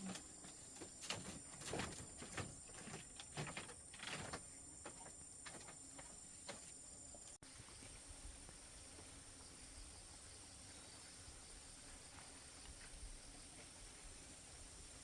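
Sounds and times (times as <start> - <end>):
faint steady hiss: 5.5 - 15.0.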